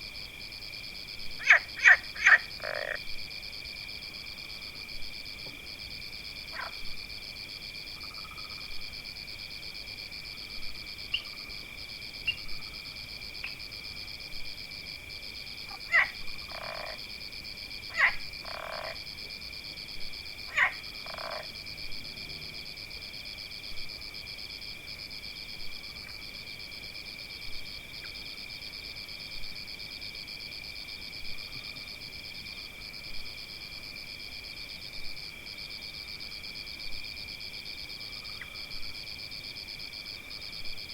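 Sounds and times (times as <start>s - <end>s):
frogs croaking: 0.0s - 9.3s, 10.1s - 14.6s, 15.4s - 24.5s, 30.3s - 40.9s
repeating frog call: 1.4s - 3.0s, 6.5s - 6.8s, 15.7s - 17.0s, 17.9s - 19.0s, 20.5s - 21.5s.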